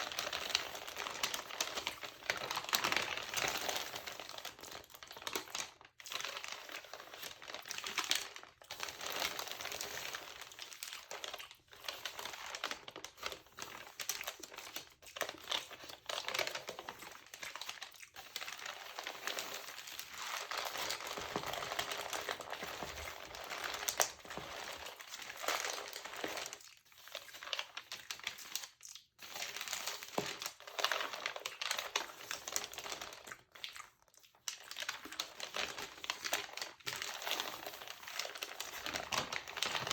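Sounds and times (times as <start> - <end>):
magazine paper crinkling: 0.0 - 26.6, 34.6 - 39.9.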